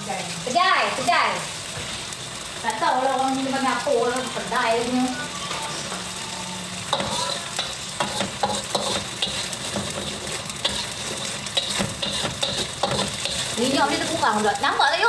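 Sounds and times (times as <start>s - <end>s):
paste sizzling in oil: 0.0s - 15.0s
spatula scraping a wok: 3.8s - 14.6s.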